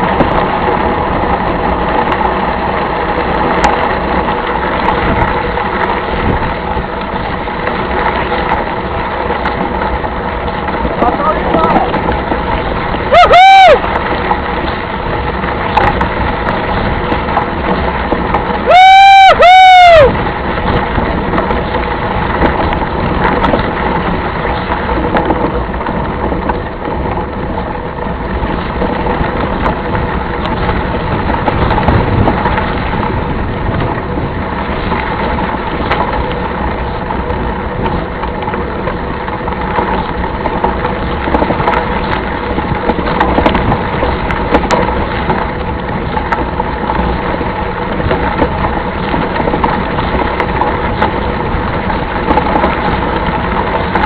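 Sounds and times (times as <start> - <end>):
rolling noise over rough ground: 0.0 - 54.0
rattles and crunches: 13.8 - 18.7, 20.1 - 54.0.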